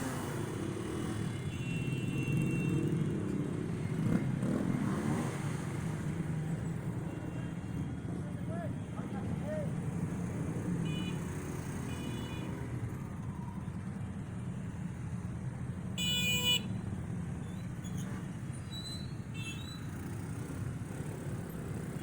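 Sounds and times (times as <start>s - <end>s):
rumble of cars and motorcycles: 0.0s - 22.0s
vehicle horns tooting: 10.8s - 12.6s, 16.0s - 16.8s.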